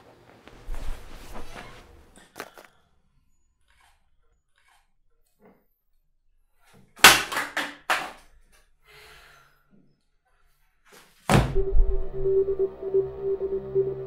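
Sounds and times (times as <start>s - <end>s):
low synth music: 11.6s - 14.0s.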